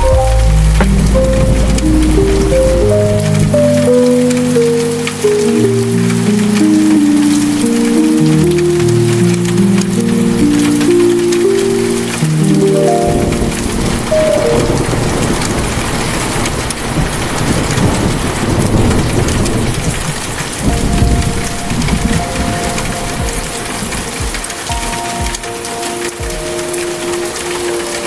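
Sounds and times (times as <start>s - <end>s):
low thuds: 0.0s - 3.6s
soft music with held notes: 0.0s - 17.1s, 20.4s - 28.0s
rain pattering: 0.0s - 28.0s
thunder rumbling: 0.0s - 28.0s.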